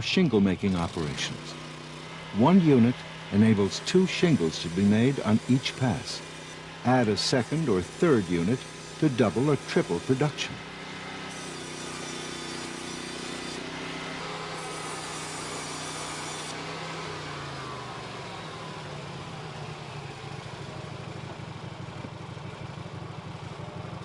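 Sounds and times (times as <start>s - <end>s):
sawmill engine running: 0.0s - 24.0s.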